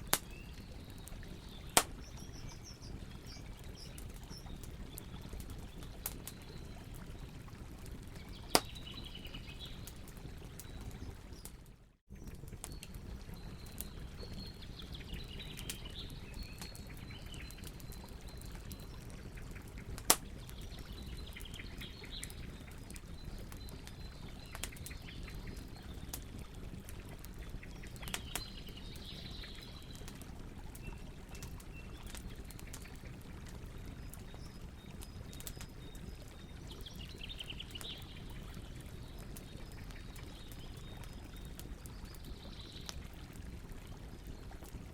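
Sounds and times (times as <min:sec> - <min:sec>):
birds chirping: 0:00.0 - 0:11.5
campfire crackling: 0:00.0 - 0:44.9
low rumble of flames: 0:00.0 - 0:44.9.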